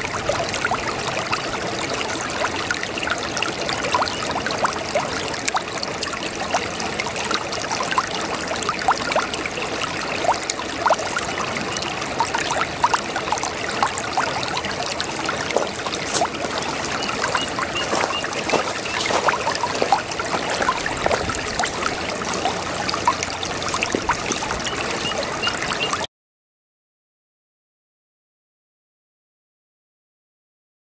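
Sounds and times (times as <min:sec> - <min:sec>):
brook babbling: 0:00.0 - 0:26.1.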